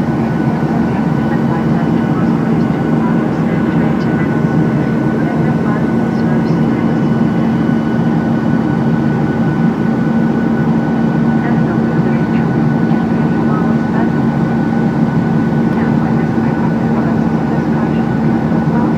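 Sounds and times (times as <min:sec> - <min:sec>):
airplane cabin engine drone: 0:00.0 - 0:18.9.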